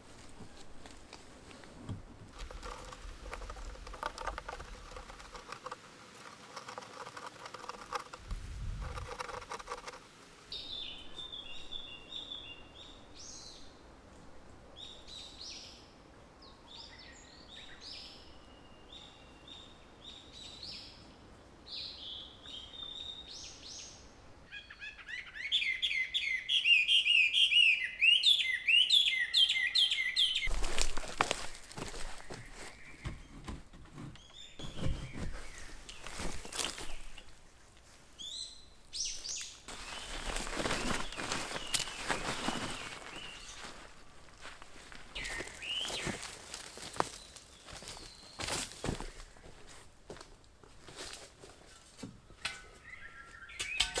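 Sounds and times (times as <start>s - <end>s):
rustling noise: 0.0s - 10.6s, 30.4s - 38.0s, 39.2s - 49.9s
birds singing and chirping: 38.2s - 43.8s, 45.2s - 49.2s, 52.4s - 54.0s.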